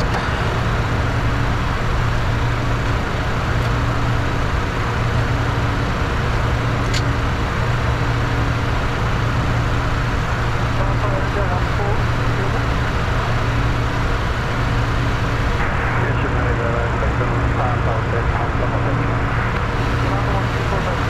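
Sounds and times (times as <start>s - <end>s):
jet engine drone: 0.0s - 21.0s
air rushing over cockpit: 18.6s - 21.0s.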